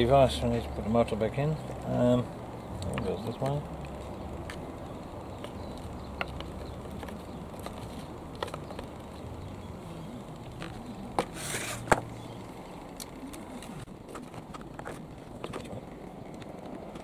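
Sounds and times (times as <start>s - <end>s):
brief scrape: 11.2s - 11.9s.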